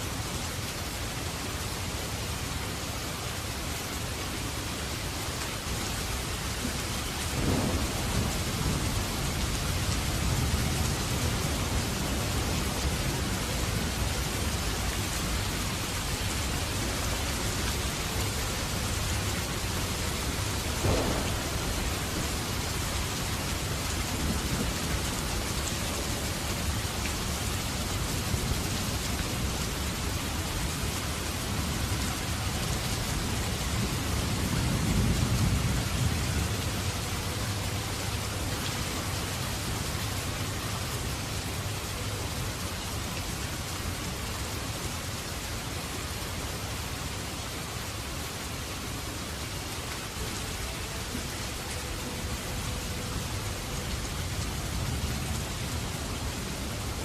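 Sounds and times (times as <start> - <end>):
dense rainfall: 0.0 - 57.0
thunder rumbling: 7.1 - 37.0
sharp thunder clap: 20.7 - 24.7.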